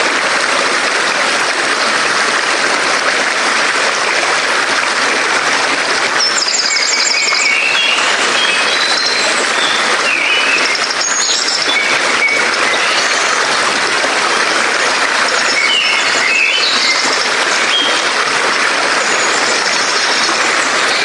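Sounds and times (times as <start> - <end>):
birds singing: 5.7 - 13.8, 15.0 - 21.0.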